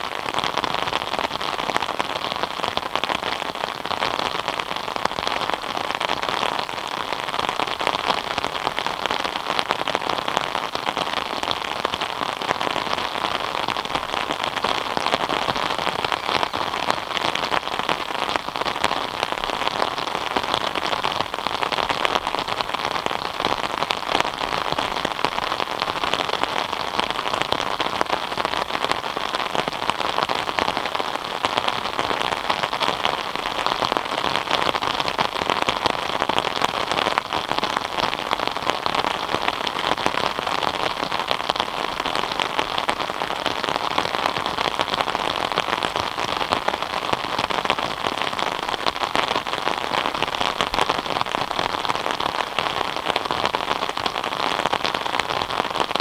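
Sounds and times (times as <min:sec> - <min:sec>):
rain pattering on a surface: 0:00.0 - 0:56.0.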